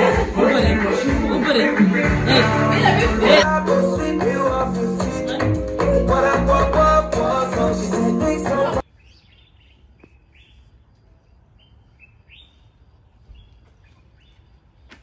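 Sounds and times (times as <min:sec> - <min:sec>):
music with singing and guitar: 0:00.0 - 0:08.8
quiet bird chirps: 0:08.8 - 0:14.6.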